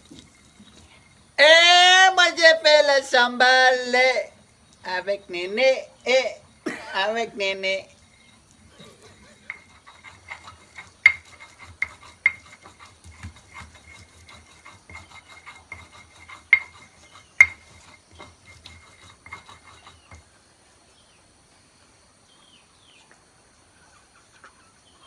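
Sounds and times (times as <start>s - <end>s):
utensil tapping and scraping a pot: 8.0s - 20.3s.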